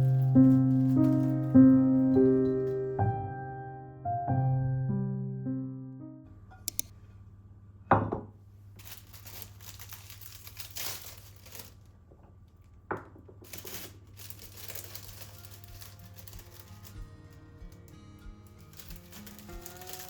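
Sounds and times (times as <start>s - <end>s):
crinkling rustling: 0.0s - 3.0s, 8.7s - 20.0s.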